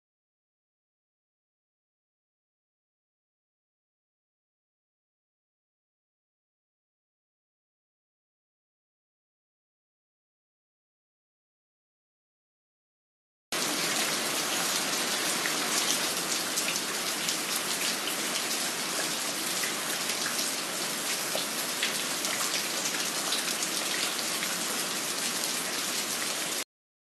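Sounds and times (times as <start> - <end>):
steady rain falling: 13.6 - 26.6.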